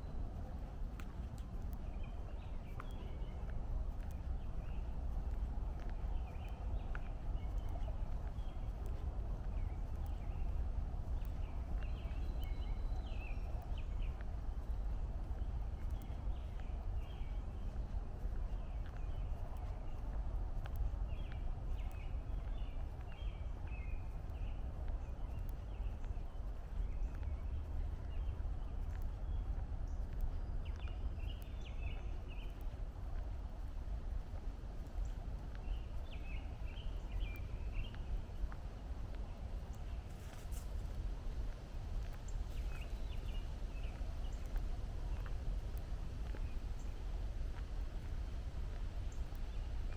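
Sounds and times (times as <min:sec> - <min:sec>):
footsteps on a trail: 0:00.0 - 0:49.9
birds chirping: 0:01.3 - 0:32.8, 0:34.9 - 0:38.6, 0:42.1 - 0:47.7.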